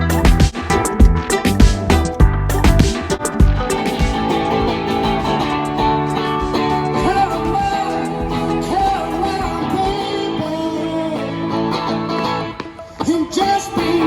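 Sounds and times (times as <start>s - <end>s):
guitar playing: 0.0s - 14.0s
person singing: 6.1s - 12.0s, 12.8s - 14.0s.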